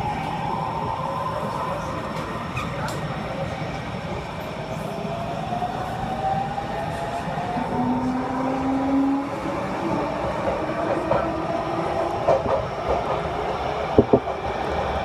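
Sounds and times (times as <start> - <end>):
wheels rumbling on rail: 7.4 - 15.0.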